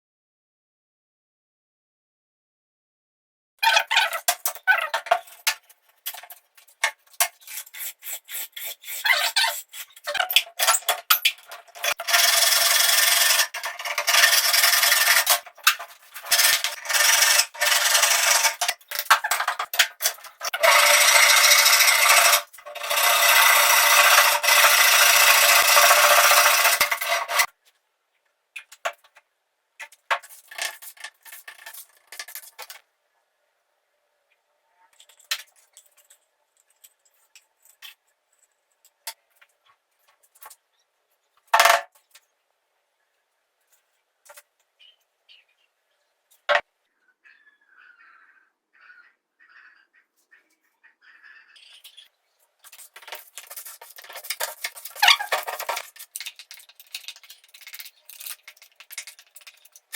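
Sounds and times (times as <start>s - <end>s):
sanding wooden bat blade: 7.4s - 10.2s, 11.8s - 15.4s, 16.2s - 19.0s, 20.0s - 27.5s.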